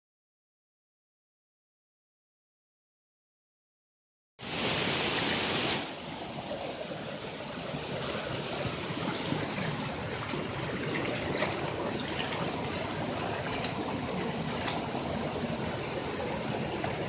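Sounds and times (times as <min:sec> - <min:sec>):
flowing water rushing: 0:04.4 - 0:17.0.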